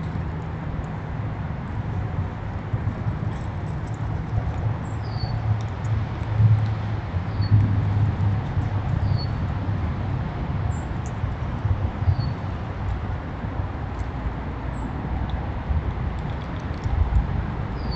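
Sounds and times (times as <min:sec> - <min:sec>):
low rumble: 0:01.9 - 0:13.1.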